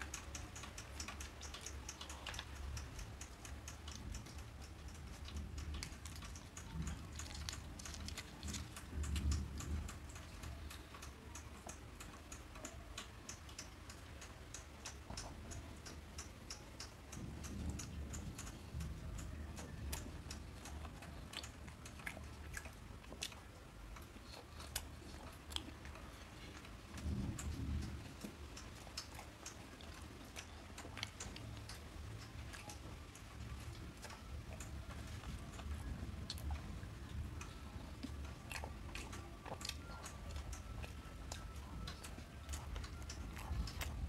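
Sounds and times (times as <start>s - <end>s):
man chewing with mouth clicks: 0.0s - 44.0s.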